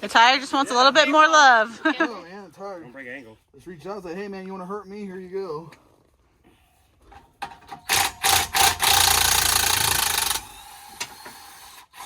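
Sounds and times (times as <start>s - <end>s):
handheld power tool whirring: 7.7s - 12.0s.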